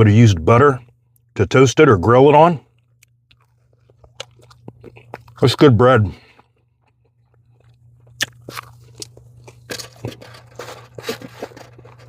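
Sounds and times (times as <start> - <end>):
person chewing crunchy food: 2.7 - 12.0.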